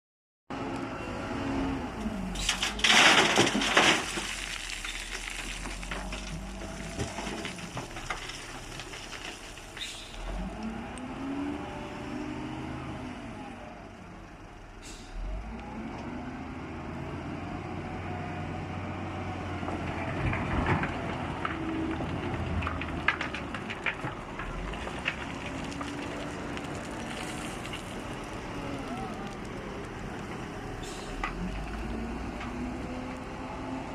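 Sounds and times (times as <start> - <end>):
diesel engine revving under load: 9.9 - 14.0, 14.7 - 23.5, 24.3 - 33.9.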